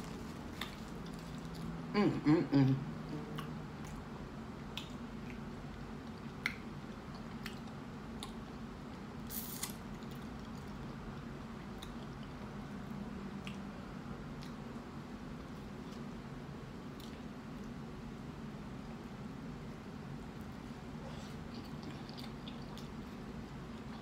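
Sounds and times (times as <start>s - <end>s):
steady low hum: 0.0s - 24.0s
wet chewing: 4.7s - 12.5s, 21.1s - 24.0s.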